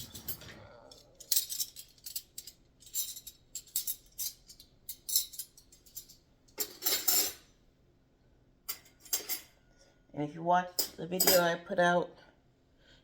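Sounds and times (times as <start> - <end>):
metal cutlery clinking: 0.0 - 7.4, 8.7 - 9.5, 10.8 - 11.5.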